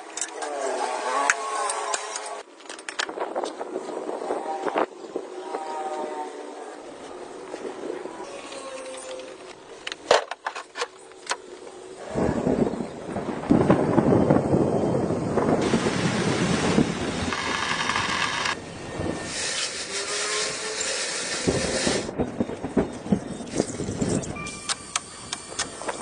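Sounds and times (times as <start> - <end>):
hissing air jet: 19.0 - 22.1.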